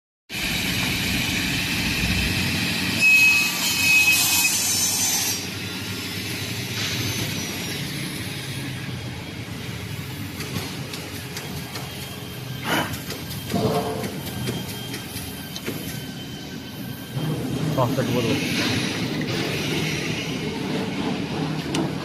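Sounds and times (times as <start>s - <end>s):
table saw running: 0.3s - 10.2s
saw blade cutting whine: 0.3s - 21.1s.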